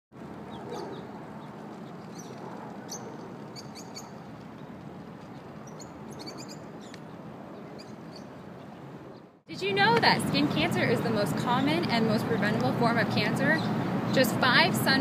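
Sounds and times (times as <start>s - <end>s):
high bird chirps: 5.6s - 8.4s.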